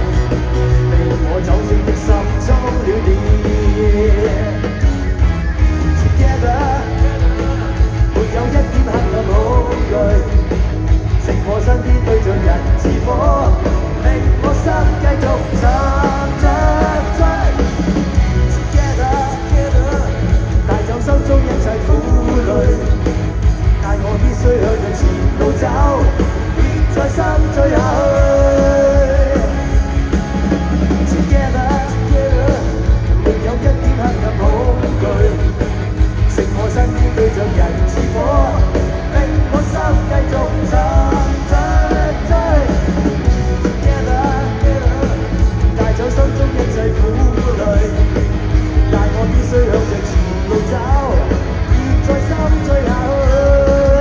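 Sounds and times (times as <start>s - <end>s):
lead vocal singing: 0.0s - 5.0s, 5.8s - 54.0s
rock band playing: 0.0s - 54.0s.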